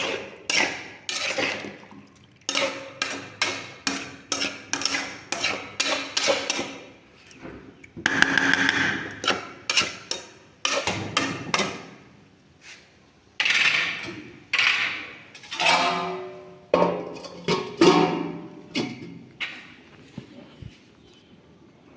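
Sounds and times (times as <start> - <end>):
sharp knocks in kitchen: 8.0 - 9.4.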